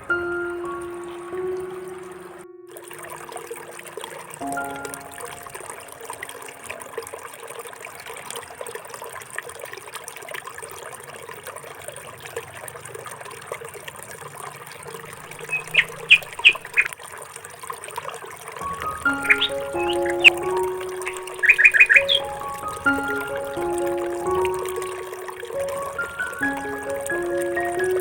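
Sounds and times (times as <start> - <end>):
running water trickling: 0.0 - 28.0
bird chirping: 15.3 - 16.9, 18.7 - 28.0.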